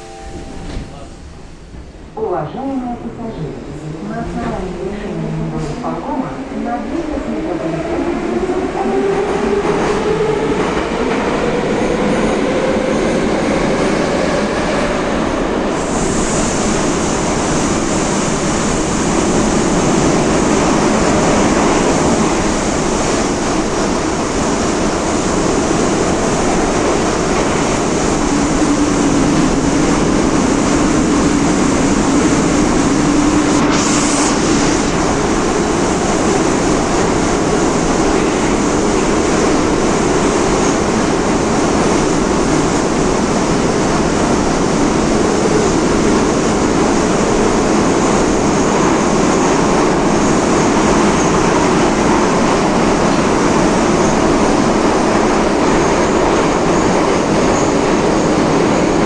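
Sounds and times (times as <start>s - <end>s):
train rumble and rail noise: 0.0s - 59.0s
hiss: 33.3s - 35.0s.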